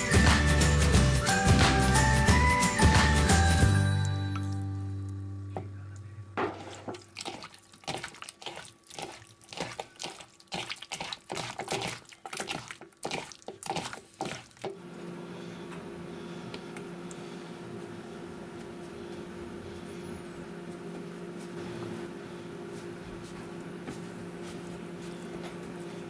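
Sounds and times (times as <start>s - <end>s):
steady low hum: 4.5s - 10.2s, 14.8s - 26.0s
wet squelches of kneading: 6.6s - 14.8s.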